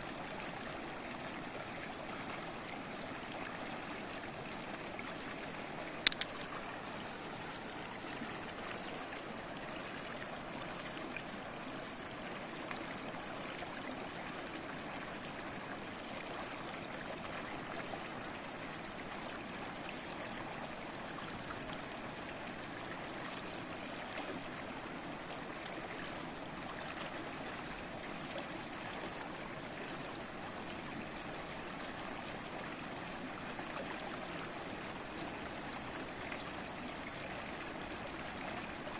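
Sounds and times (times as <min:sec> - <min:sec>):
small stream babbling: 0:00.0 - 0:38.9
sharp click: 0:06.0 - 0:06.5.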